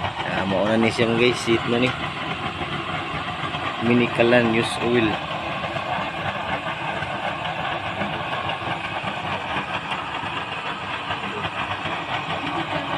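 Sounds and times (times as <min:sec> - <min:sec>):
oil stove burning: 0:00.0 - 0:12.9.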